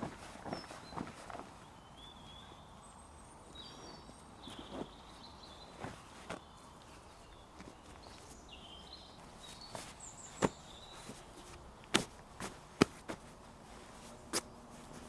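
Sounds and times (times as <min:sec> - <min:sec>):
birds chirping: 0:00.1 - 0:15.0
soft knocks and crackles: 0:09.2 - 0:15.0.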